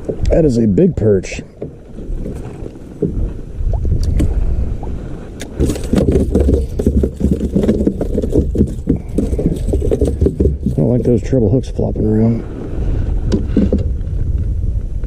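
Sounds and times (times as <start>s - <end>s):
fish flopping on a kayak: 0.0s - 11.3s
low rumbling: 0.0s - 15.0s
treble hooks rattling: 5.5s - 11.4s.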